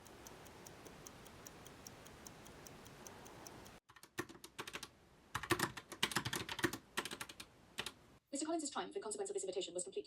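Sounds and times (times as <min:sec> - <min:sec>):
pocket watch ticking: 0:00.0 - 0:03.8.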